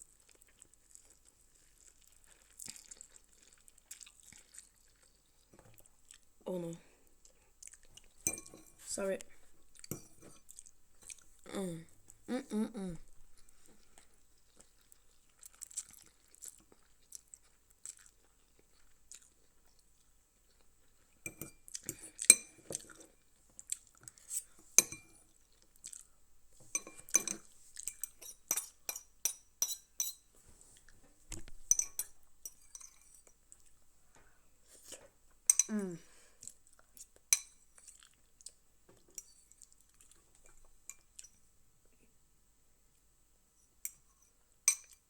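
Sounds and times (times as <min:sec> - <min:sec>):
chewing: 0:00.0 - 0:06.3, 0:07.0 - 0:11.5, 0:13.0 - 0:26.2, 0:26.8 - 0:33.8, 0:36.3 - 0:41.4
utensils clinking against bowl: 0:08.2 - 0:08.8, 0:26.7 - 0:30.2.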